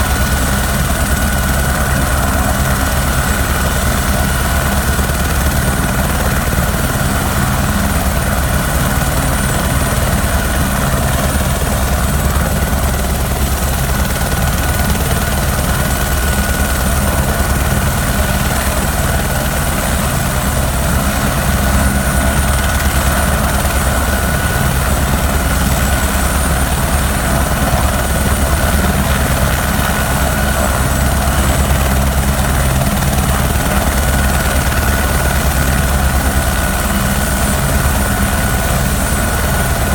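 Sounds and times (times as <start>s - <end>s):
helicopter rotor rumble: 0.0s - 39.9s.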